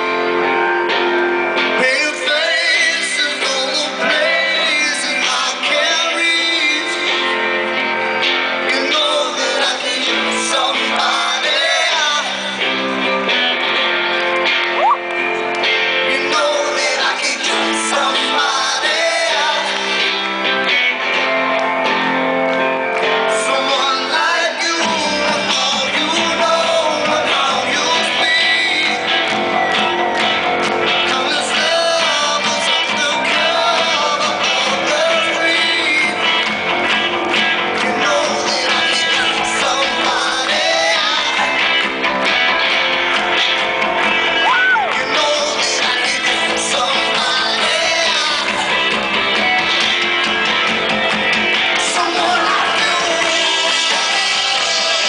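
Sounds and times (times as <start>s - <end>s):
electric guitar: 0.0s - 55.0s
person singing: 16.0s - 20.2s, 23.1s - 29.4s, 30.9s - 36.4s, 37.8s - 41.8s, 44.4s - 49.0s, 51.7s - 55.0s
bass and drums: 24.8s - 55.0s.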